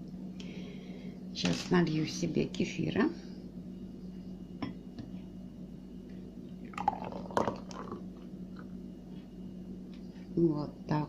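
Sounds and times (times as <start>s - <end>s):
liquid pouring into a glass: 6.7s - 8.2s.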